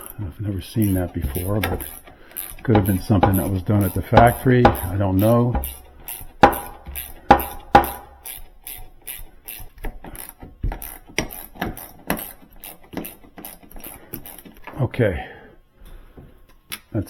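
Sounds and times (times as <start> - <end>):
metal hardware clanking: 0.8 - 8.2.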